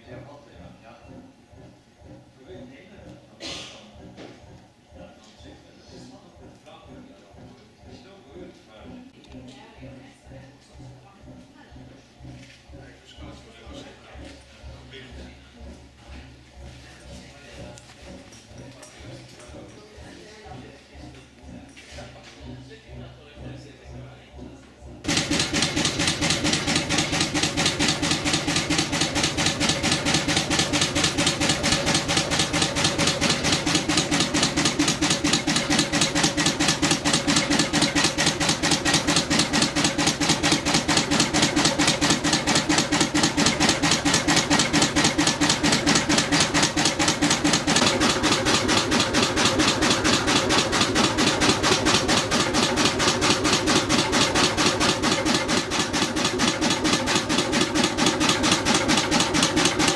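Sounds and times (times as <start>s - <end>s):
old marine engine knocking: 25.0s - 59.9s.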